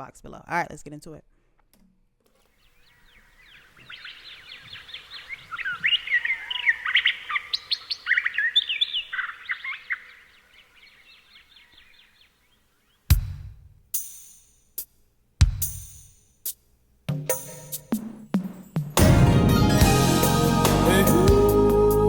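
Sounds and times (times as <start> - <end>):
songbirds chirping: 2.4 - 13.1.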